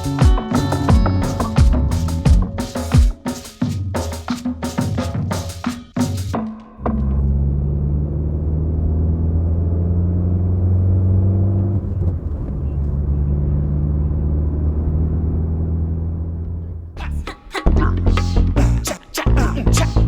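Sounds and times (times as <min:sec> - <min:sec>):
car engine humming: 0:00.0 - 0:03.1, 0:06.8 - 0:17.8.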